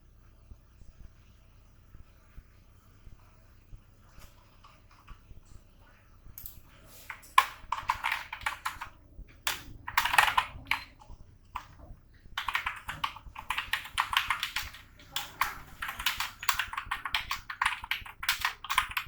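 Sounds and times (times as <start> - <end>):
computer keyboard typing: 7.1 - 19.0.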